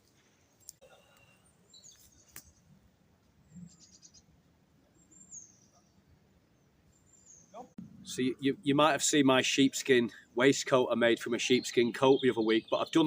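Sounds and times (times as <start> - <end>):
faint bird chirps: 0.8 - 2.6, 3.4 - 7.8.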